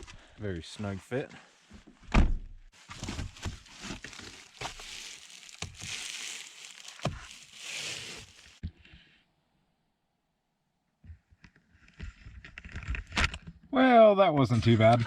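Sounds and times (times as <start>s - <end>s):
window shades crinkling and rubbing: 2.8s - 8.6s.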